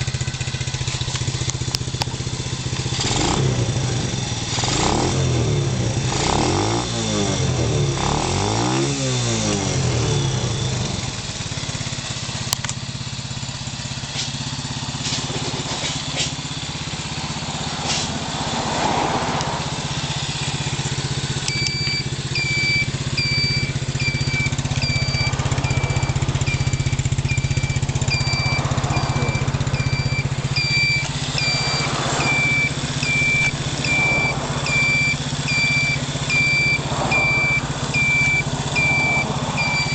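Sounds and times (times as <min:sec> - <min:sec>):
small engine revving and idling: 0:00.0 - 0:39.9
high electronic beeps: 0:21.5 - 0:39.9.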